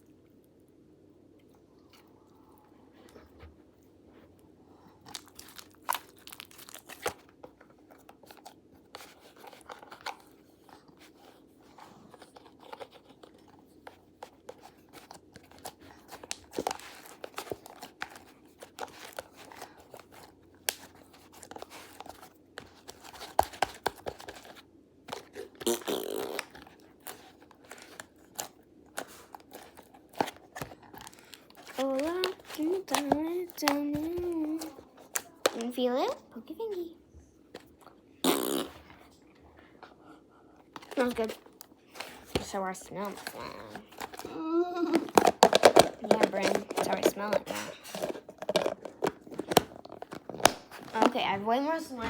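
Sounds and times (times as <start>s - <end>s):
slime squelching and popping: 42.2s - 51.4s.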